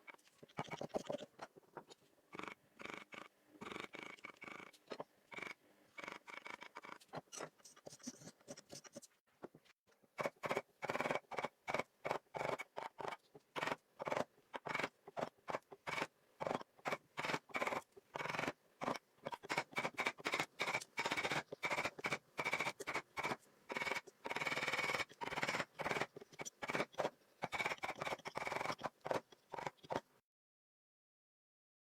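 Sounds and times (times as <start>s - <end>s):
hand tool scraping wood: 10.2s - 30.0s.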